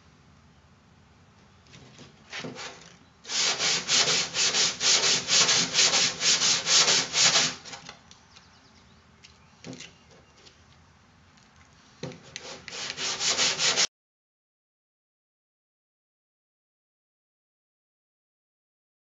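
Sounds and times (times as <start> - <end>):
sandpaper rubbing on metal: 2.3 - 7.7, 12.3 - 13.9.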